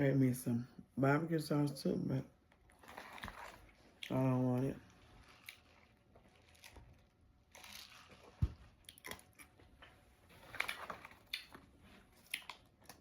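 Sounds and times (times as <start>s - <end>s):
person chewing food: 2.4s - 4.2s, 4.8s - 13.0s.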